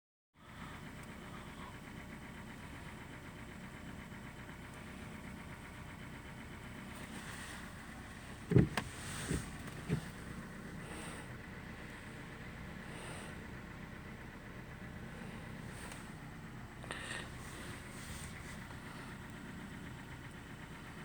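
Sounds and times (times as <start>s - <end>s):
car engine idling: 0.4s - 21.0s
short thumps: 7.0s - 10.2s.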